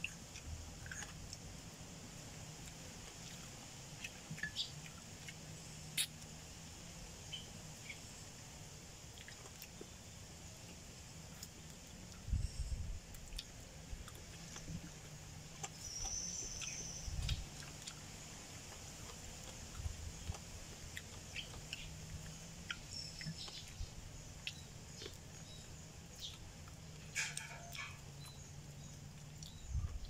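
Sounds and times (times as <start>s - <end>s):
chewing and mouth smacks: 0.0s - 1.8s, 2.5s - 6.3s, 9.0s - 9.9s, 13.1s - 30.0s
faint low hum: 0.0s - 30.0s
bird chirping: 4.0s - 5.0s, 7.2s - 8.2s, 15.6s - 18.0s, 19.7s - 30.0s.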